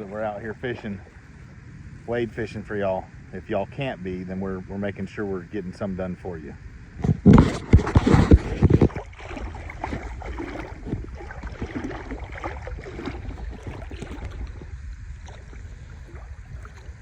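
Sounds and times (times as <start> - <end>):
water sloshing and splashing: 0.0 - 2.3, 7.0 - 17.0
low wind rumble on microphone: 0.0 - 17.0.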